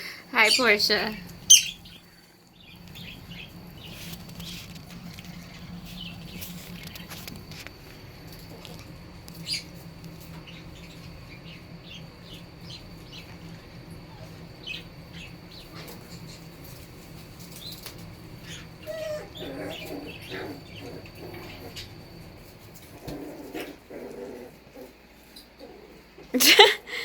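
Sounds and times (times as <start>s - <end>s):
puppies squeaking and chirping: 0.4s - 2.1s, 17.5s - 22.0s
puppy whimpering: 18.5s - 21.0s.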